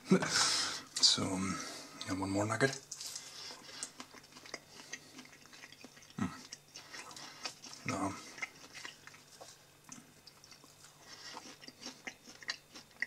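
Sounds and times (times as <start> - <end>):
person chewing food: 2.7 - 13.0.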